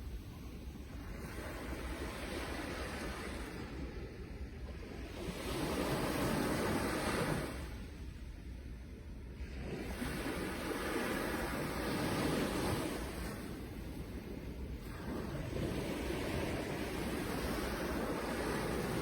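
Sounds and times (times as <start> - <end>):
sea waves washing onto shore: 9.4 - 19.0.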